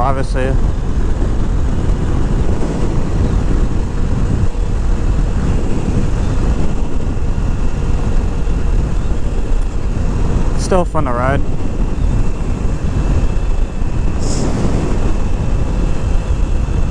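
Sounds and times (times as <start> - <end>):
wind rush on microphone: 0.0 - 16.9
motorcycle engine running: 0.6 - 10.6.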